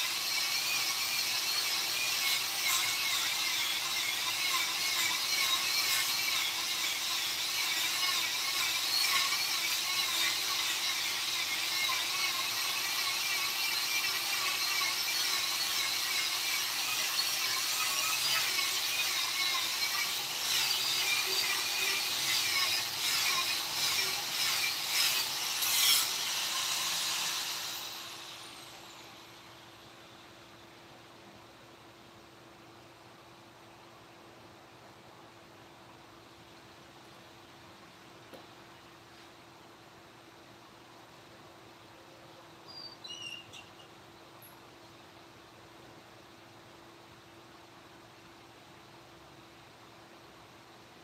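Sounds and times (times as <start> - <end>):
rotary tool grinding wood: 0.0 - 29.5.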